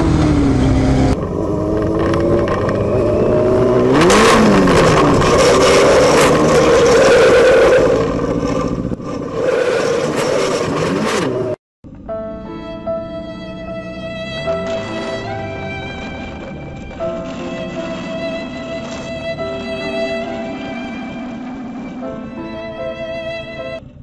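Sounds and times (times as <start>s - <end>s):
motorcycle engine revving: 0.0s - 12.1s, 13.1s - 24.0s
soft music: 11.9s - 24.0s.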